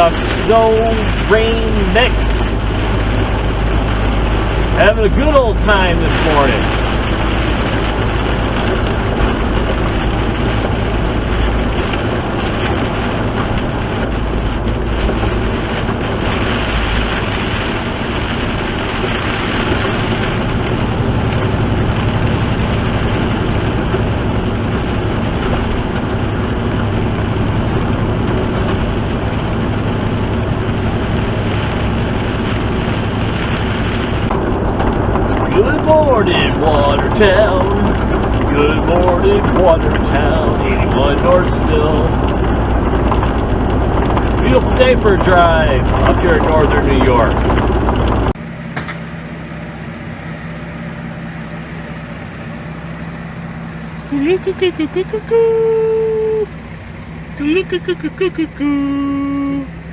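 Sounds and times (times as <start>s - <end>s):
tyres hissing on wet road: 0.0s - 34.3s, 35.2s - 47.4s
truck diesel engine running: 0.0s - 59.9s.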